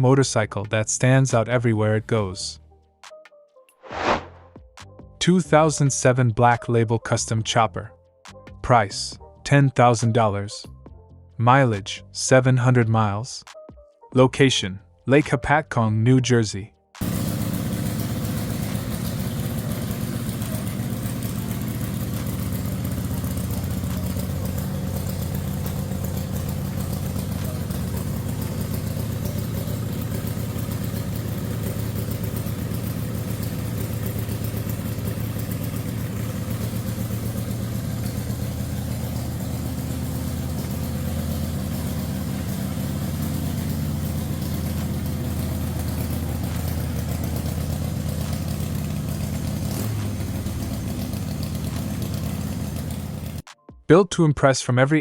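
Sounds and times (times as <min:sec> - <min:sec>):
motorcycle engine idling: 0:17.0 - 0:53.5.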